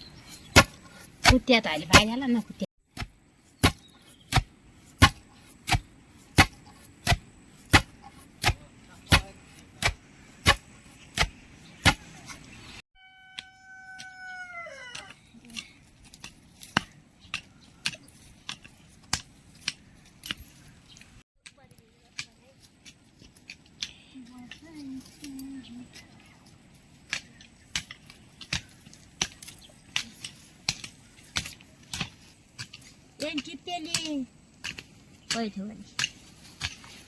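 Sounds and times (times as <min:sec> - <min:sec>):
call falling in pitch: 0:13.0 - 0:15.1.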